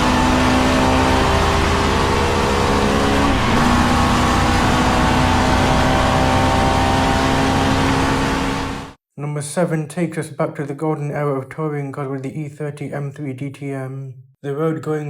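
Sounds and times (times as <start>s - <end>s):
race car engine and gearbox whine: 0.0s - 9.0s.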